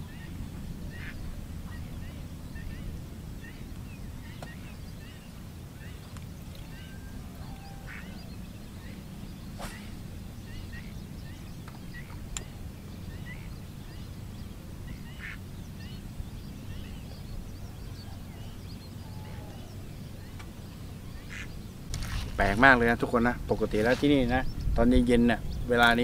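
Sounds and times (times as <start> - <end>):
faint short bird calls: 0.0 - 14.2, 14.8 - 22.7
steady low rumble: 0.0 - 26.0.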